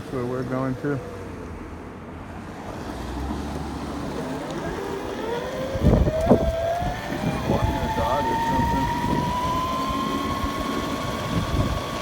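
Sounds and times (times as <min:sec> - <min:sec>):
electric motor whining: 0:04.0 - 0:12.0
wind rumble on microphone: 0:05.7 - 0:12.0.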